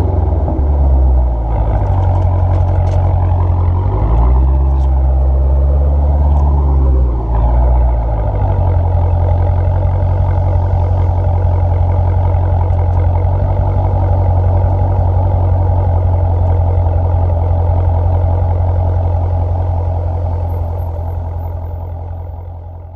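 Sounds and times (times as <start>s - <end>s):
car engine deep idle: 8.3s - 22.9s.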